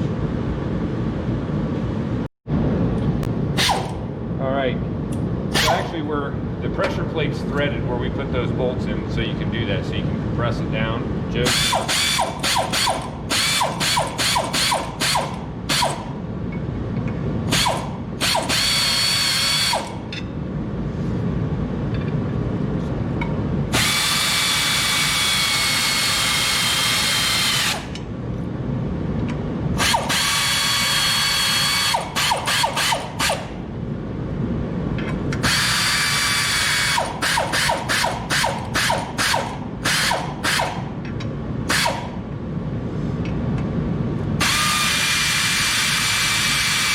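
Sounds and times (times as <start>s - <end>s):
power driver running: 11.4s - 16.2s, 17.4s - 20.1s, 23.7s - 28.1s, 29.8s - 33.6s, 35.3s - 41.0s, 44.4s - 46.9s
rapid ratchet clicking: 11.5s - 16.1s, 17.5s - 20.0s, 29.8s - 33.5s, 35.4s - 40.8s, 41.7s - 42.1s.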